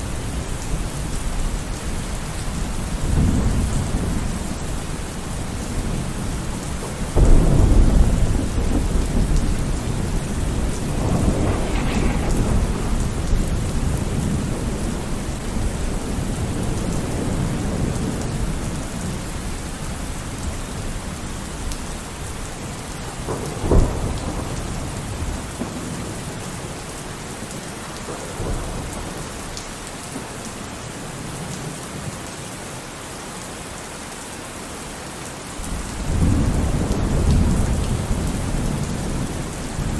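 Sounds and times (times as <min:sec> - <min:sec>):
thunder rumbling: 0:00.0 - 0:26.8
rain hissing: 0:00.0 - 0:28.8
sharp thunder crack: 0:07.1 - 0:16.7.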